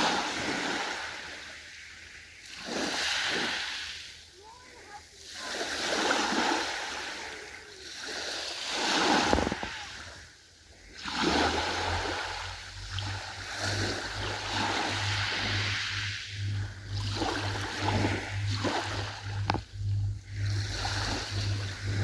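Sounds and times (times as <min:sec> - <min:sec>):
ocean waves breaking: 0:00.0 - 0:22.0
low pulsing rumble: 0:09.2 - 0:22.0.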